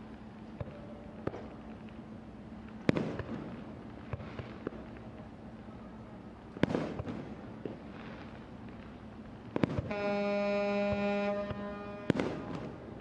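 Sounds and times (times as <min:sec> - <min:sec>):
small fireworks pops: 0:00.0 - 0:10.2, 0:10.8 - 0:13.0
fireworks booms with echo: 0:02.8 - 0:04.9, 0:06.5 - 0:08.3, 0:09.5 - 0:10.2, 0:10.8 - 0:13.0.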